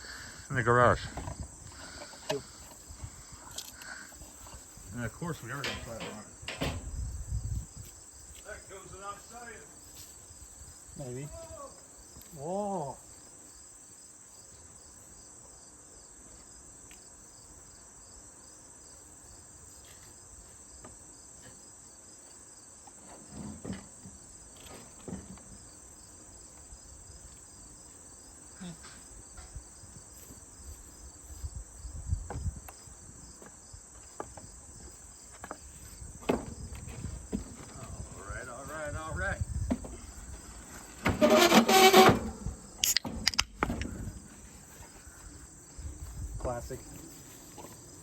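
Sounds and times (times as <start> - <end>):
insects chirring: 0.0 - 48.0
knocks and thumps: 5.6 - 7.2, 35.3 - 38.0, 39.5 - 40.4.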